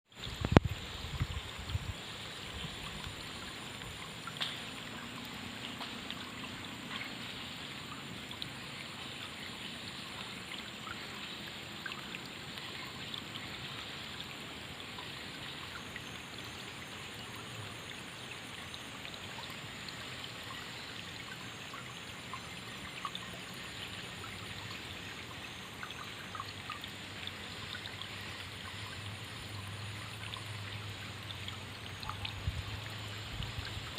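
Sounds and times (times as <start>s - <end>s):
small water splashes: 0.1s - 33.9s
water flowing and trickling: 0.1s - 33.9s.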